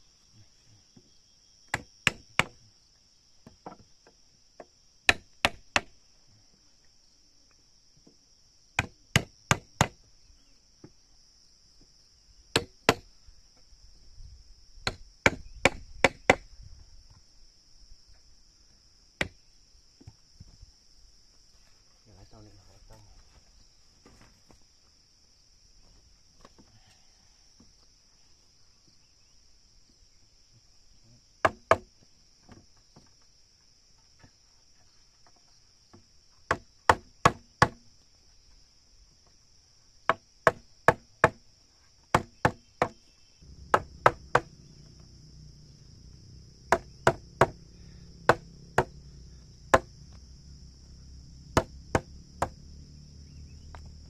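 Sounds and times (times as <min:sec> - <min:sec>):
crickets chirping: 0:00.0 - 0:54.0
hammer striking wood: 0:01.7 - 0:02.6, 0:05.1 - 0:05.9, 0:08.8 - 0:10.0, 0:12.5 - 0:13.1, 0:14.8 - 0:16.4, 0:31.4 - 0:31.9, 0:36.5 - 0:37.8, 0:40.1 - 0:41.4, 0:42.1 - 0:44.6, 0:46.7 - 0:47.6, 0:48.2 - 0:49.0, 0:49.7 - 0:49.9, 0:51.6 - 0:52.6
low hum: 0:43.4 - 0:54.0.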